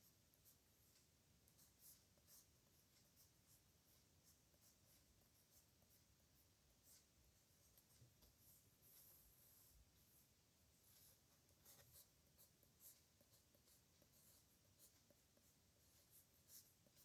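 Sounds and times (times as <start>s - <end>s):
pen scratching on paper: 10.8s - 17.0s.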